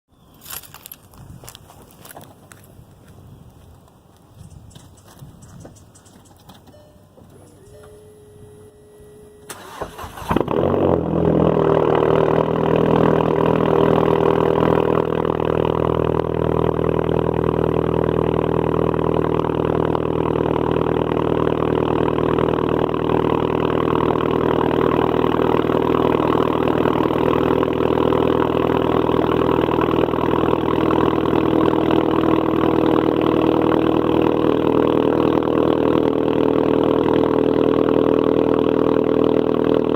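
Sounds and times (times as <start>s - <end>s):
car engine idling loudly: 9.6s - 39.9s.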